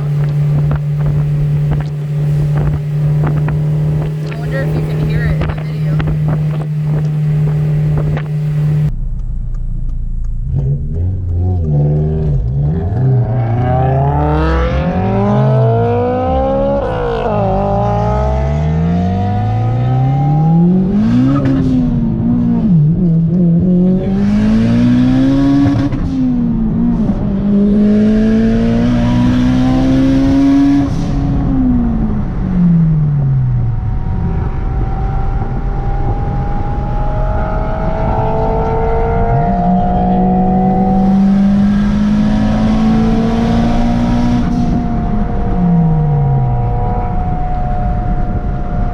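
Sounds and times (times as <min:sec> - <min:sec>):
wind noise: 0:00.0 - 0:08.9, 0:20.1 - 0:48.9
car engine accelerating: 0:00.0 - 0:48.9.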